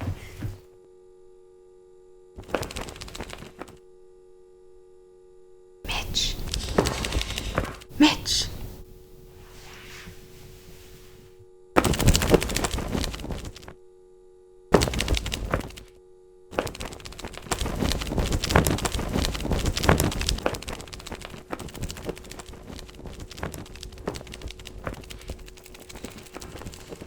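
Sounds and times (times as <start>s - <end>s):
bird wings fluttering and thrashing: 0.0s - 0.6s, 2.4s - 3.8s, 5.9s - 8.9s, 11.8s - 13.8s, 14.7s - 15.9s, 16.5s - 27.0s.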